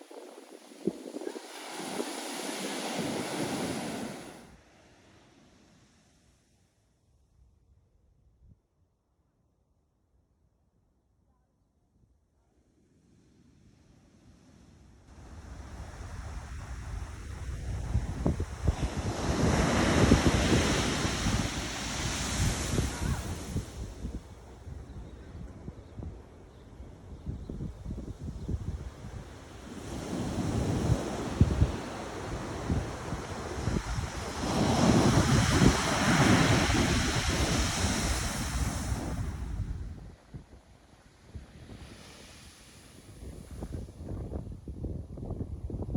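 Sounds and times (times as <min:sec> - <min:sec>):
ocean wave breaking on shore: 0:00.0 - 0:05.5, 0:18.5 - 0:24.0, 0:29.6 - 0:39.7
wind buffeting microphone: 0:15.6 - 0:40.6, 0:43.0 - 0:45.9.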